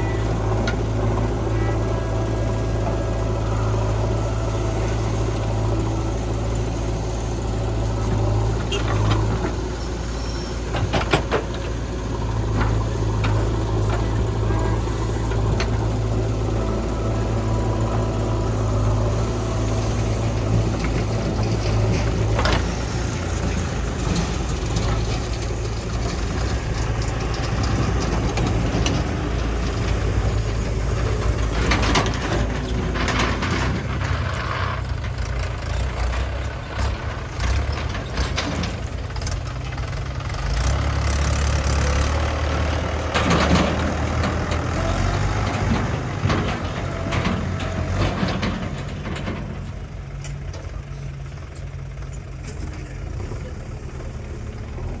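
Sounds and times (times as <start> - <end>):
diesel engines running: 0.0 - 55.0
knocks and rattles: 42.3 - 50.6.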